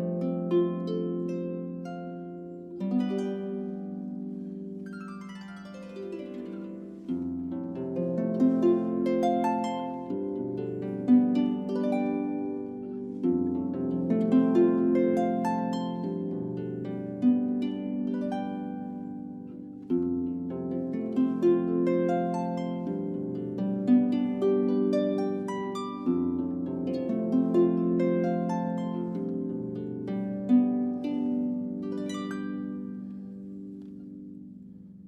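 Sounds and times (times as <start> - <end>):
harp playing: 0.0 - 35.0.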